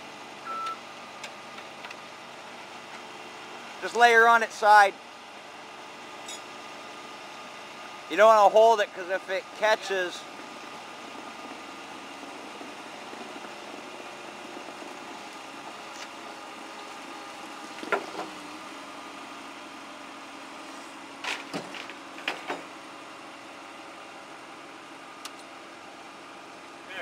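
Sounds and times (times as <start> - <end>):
engine idling: 0.0 - 27.0
sharp engine knocks: 17.8 - 18.4.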